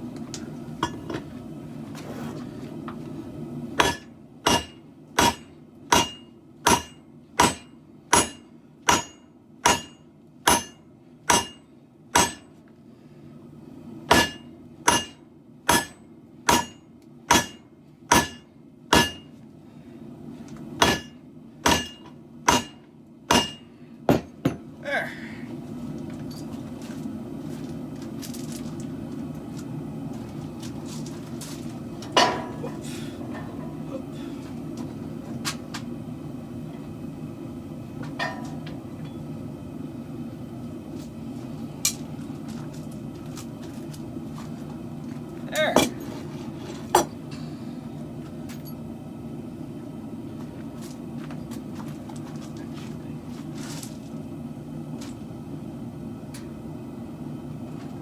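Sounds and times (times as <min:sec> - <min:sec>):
steady low hum: 0:00.0 - 0:58.0
hammer ringing on anvil: 0:03.8 - 0:12.5, 0:14.1 - 0:19.3, 0:20.8 - 0:24.3.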